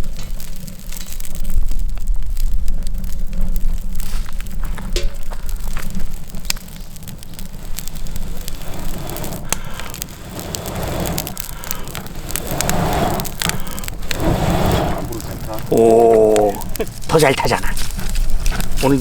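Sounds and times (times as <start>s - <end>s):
low rush of fire: 0.0s - 19.0s
wood fire crackling and popping: 0.0s - 19.0s.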